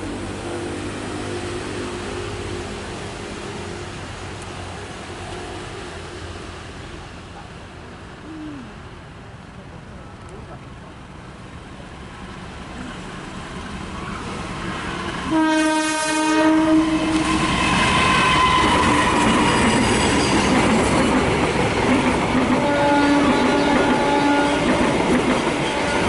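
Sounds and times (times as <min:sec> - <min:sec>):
train wheels rumbling on rails: 0:12.0 - 0:26.0
train horn: 0:15.2 - 0:20.3, 0:22.5 - 0:24.9, 0:25.5 - 0:26.0.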